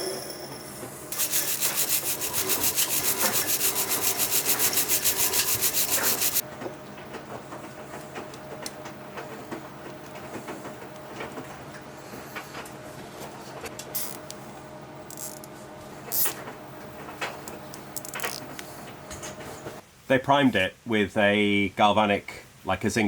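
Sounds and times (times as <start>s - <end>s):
hand scraping paint off steel: 1.1s - 6.4s.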